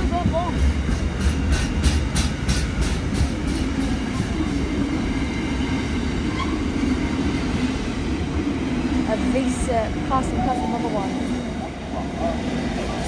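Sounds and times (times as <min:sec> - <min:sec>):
train low rumble: 0:00.0 - 0:13.0
train wheels clacking over rail joints: 0:00.1 - 0:06.6.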